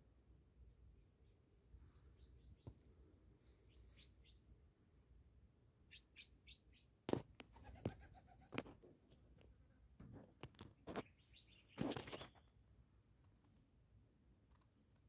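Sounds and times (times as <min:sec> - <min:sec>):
faint bird chirps: 0:00.9 - 0:04.6, 0:05.8 - 0:07.0, 0:10.8 - 0:12.6.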